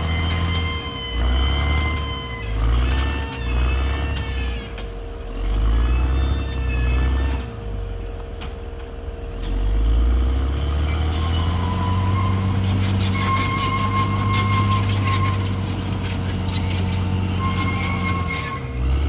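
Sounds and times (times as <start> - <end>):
high wavering squeals: 0.0 - 4.8, 10.9 - 19.0
bulldozer diesel engine under load: 0.0 - 19.0.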